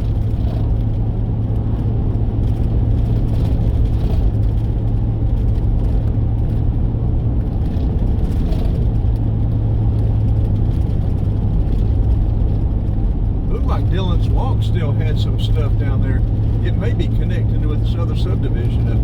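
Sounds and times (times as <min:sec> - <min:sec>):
car engine and road hum: 0:00.0 - 0:19.0.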